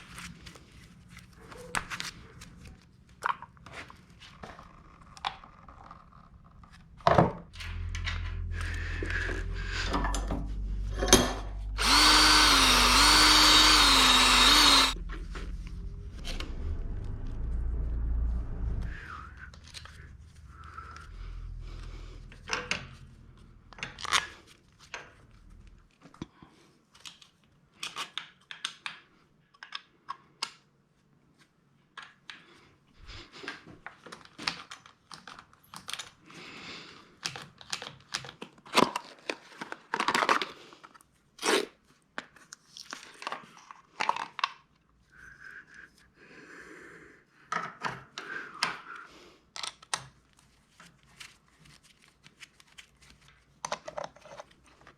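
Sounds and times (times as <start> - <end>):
low hum: 6.4 - 24.4
rustling and scraping: 50.2 - 54.9.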